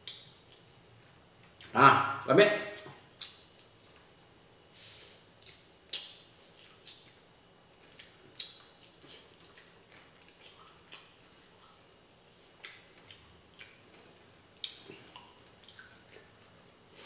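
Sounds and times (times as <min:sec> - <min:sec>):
person chewing wetly: 0:05.4 - 0:07.2, 0:07.8 - 0:17.0.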